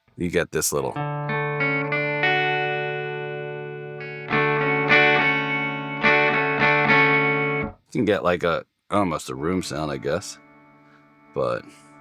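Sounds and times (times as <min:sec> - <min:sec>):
clean electric guitar chords: 0:01.0 - 0:07.8, 0:09.4 - 0:12.0.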